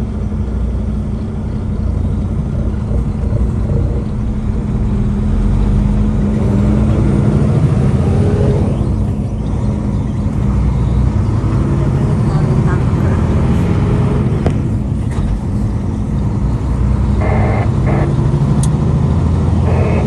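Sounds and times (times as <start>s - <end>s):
diesel truck engine droning: 0.0s - 20.0s
road rumble: 0.0s - 20.0s
rising tones: 2.4s - 10.0s, 19.6s - 20.0s.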